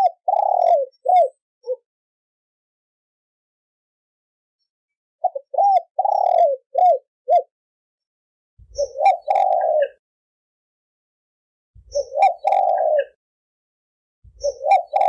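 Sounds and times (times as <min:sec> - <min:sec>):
dove cooing: 0:00.0 - 0:01.8, 0:05.2 - 0:07.5, 0:08.6 - 0:10.0, 0:11.8 - 0:13.2, 0:14.2 - 0:15.0.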